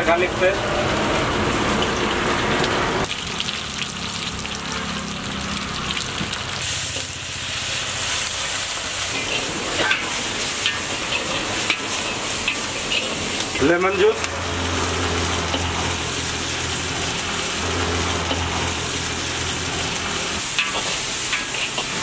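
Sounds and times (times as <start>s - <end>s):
food sizzling in hot oil: 0.0s - 22.0s
metal ladle stirring in wok: 6.6s - 22.0s.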